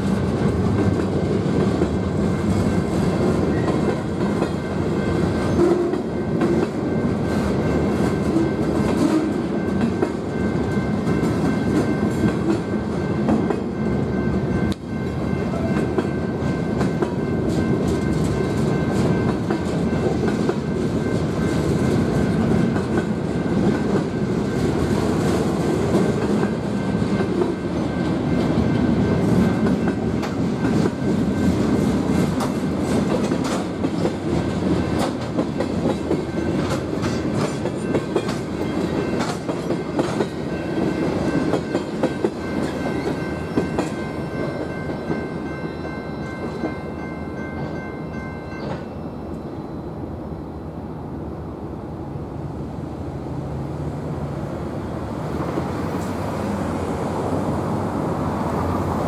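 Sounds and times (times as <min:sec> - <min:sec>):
crossing bell ringing: 0:00.0 - 0:51.1
train wheels clattering: 0:14.7 - 0:46.9.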